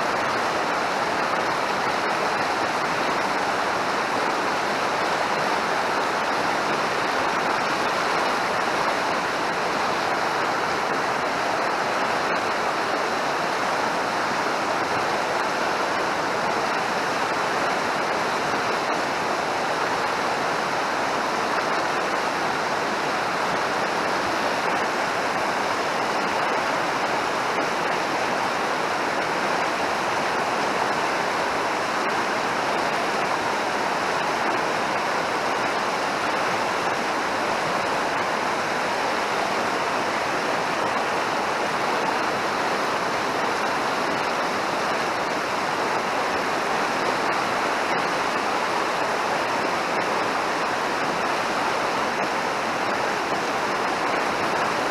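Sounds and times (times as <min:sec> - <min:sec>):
mountain stream rushing: 0:00.0 - 0:54.9.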